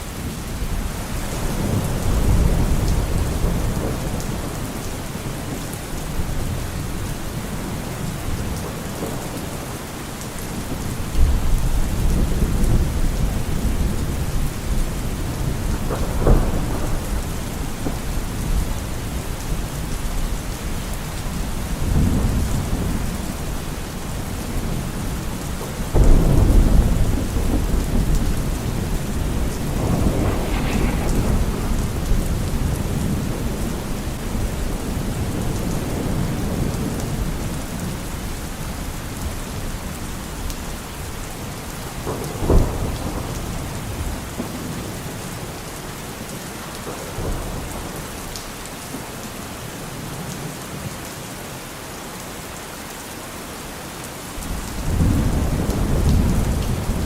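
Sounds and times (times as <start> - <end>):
heavy rain: 0.0 - 57.0
rolling thunder: 10.7 - 20.0, 21.3 - 38.3, 54.5 - 57.0
thunder crack: 26.0 - 36.6.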